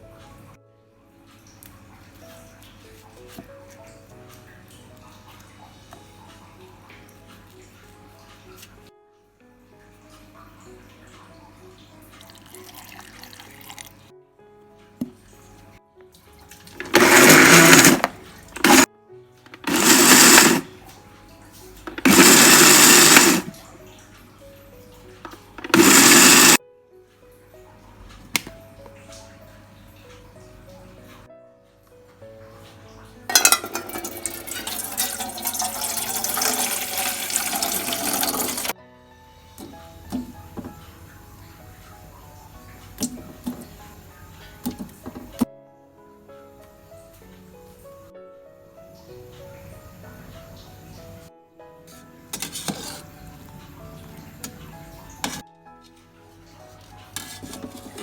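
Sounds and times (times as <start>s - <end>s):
soft background music: 0.0s - 58.0s
electric blender running: 16.8s - 18.9s, 19.6s - 20.7s, 21.9s - 23.6s, 25.6s - 26.6s, 33.4s - 38.7s.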